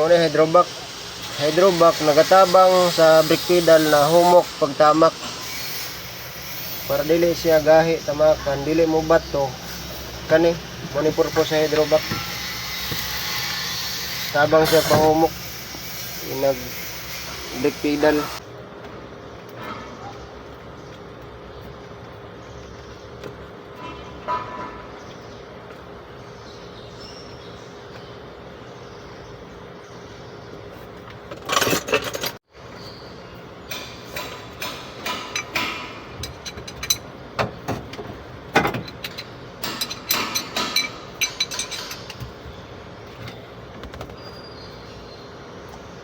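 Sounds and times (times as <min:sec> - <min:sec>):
steady background hum: 0:00.0 - 0:46.0
hand tools clicking and knocking: 0:33.7 - 0:42.4.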